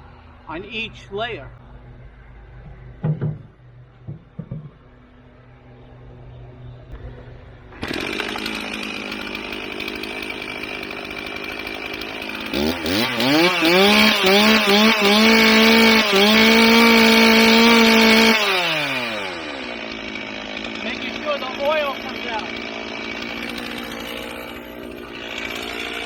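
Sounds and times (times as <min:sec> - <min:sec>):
chainsaw running and revving: 0:07.7 - 0:26.0.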